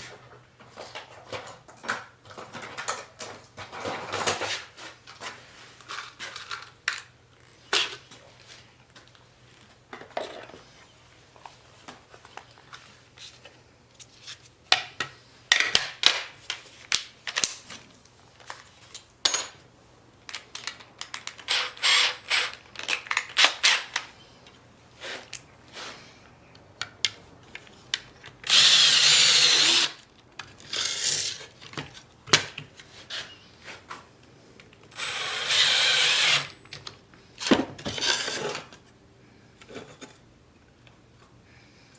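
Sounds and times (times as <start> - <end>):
tools and metal parts clattering: 0.2 - 7.2, 18.4 - 19.6, 20.2 - 24.0
power tool running: 28.5 - 29.9, 34.9 - 36.7.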